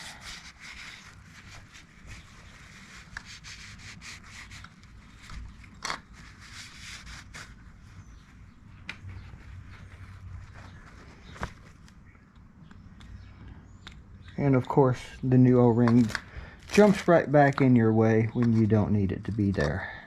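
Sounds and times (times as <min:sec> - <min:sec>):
rubbing and scrubbing: 0:00.0 - 0:05.3.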